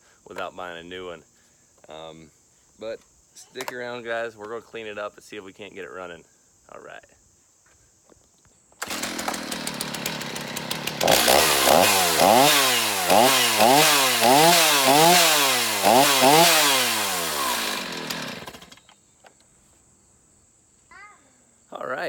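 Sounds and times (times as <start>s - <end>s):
chainsaw idling and revving: 8.8s - 18.8s.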